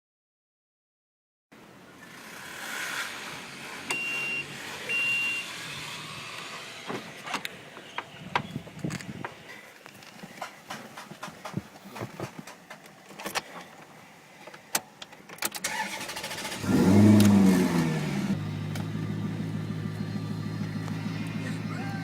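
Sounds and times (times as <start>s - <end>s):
car engine starting and idling: 15.4s - 22.0s.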